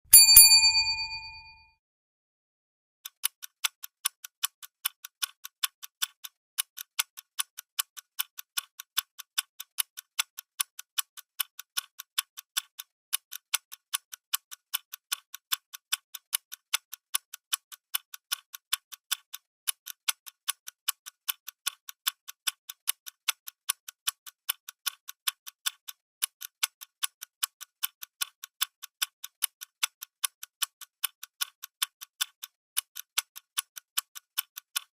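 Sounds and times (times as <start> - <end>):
ringing chime: 0.1 - 1.7
clock ticking: 3.0 - 34.9.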